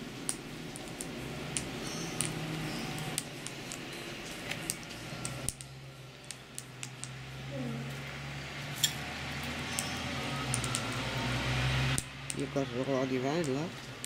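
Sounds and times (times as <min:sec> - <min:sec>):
birds pecking on hard surface: 0:00.2 - 0:08.0.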